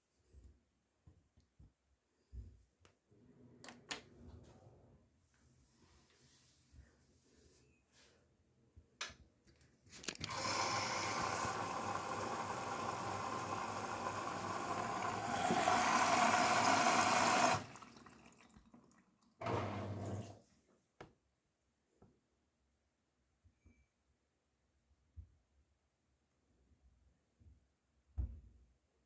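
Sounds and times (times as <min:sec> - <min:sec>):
washing machine water inlet rushing: 0:10.2 - 0:18.5.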